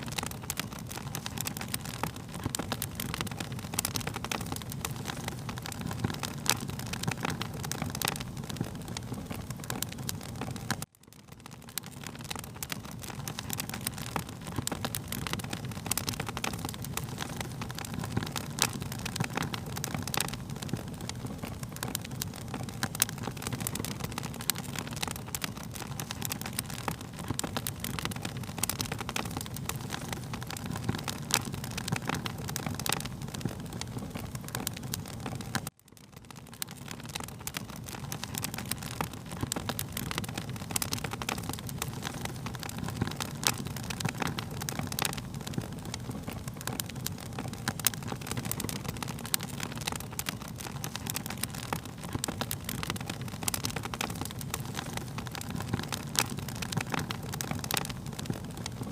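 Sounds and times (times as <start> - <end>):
wood fire crackling and popping: 0.0 - 58.9.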